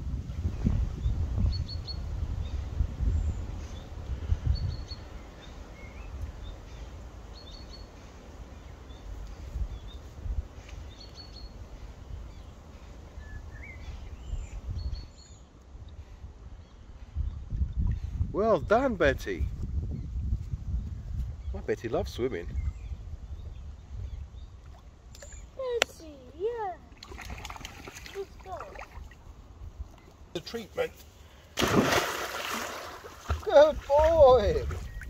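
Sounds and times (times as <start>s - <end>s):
small birds chirping: 1.0s - 18.9s, 19.9s - 31.5s, 33.2s - 35.0s.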